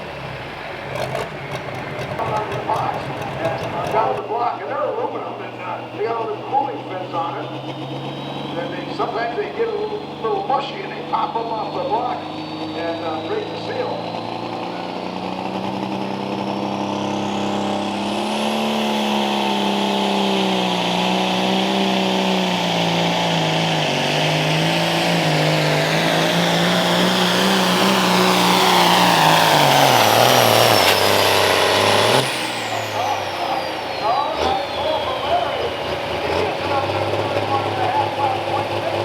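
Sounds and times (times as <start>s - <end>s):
tractor engine at full power: 0.0s - 39.0s
high turbo whistle: 6.3s - 10.2s.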